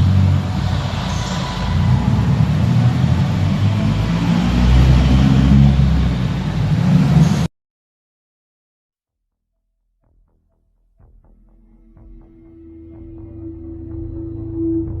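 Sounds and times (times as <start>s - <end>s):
car engine deep rumble: 0.0s - 7.5s.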